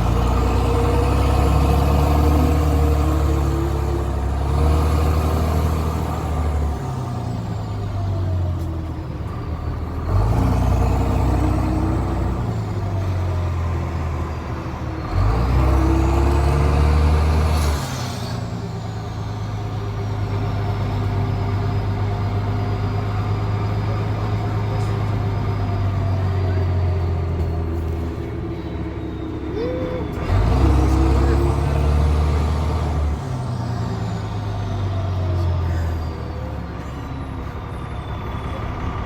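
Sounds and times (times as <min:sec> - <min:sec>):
diesel engine revving: 0:00.0 - 0:39.0.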